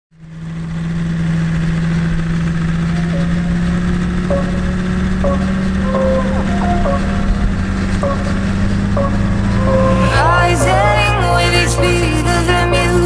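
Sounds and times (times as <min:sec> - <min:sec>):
car engine running at low revs: 0:00.2 - 0:10.4.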